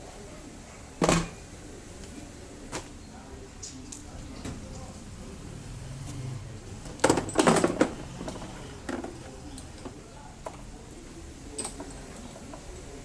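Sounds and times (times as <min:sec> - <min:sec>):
metal tools clicking and clattering: 0:06.9 - 0:10.6, 0:11.5 - 0:13.0.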